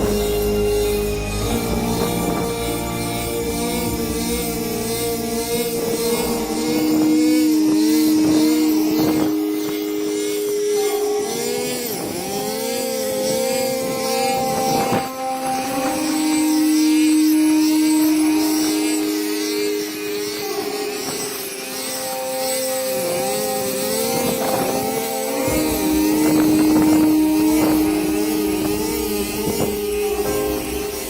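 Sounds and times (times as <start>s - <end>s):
deep rumble: 0.0s - 9.5s
harvester engine running: 0.0s - 31.0s.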